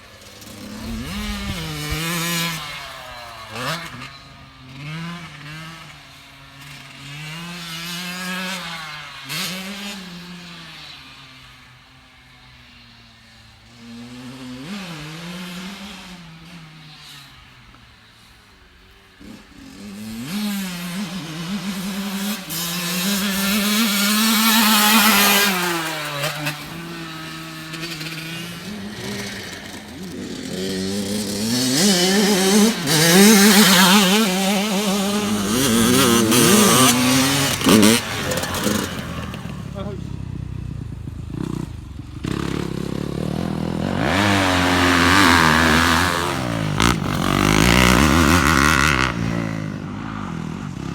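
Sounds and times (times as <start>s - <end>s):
dirt bike engine revving: 0.0s - 12.4s, 19.2s - 50.9s.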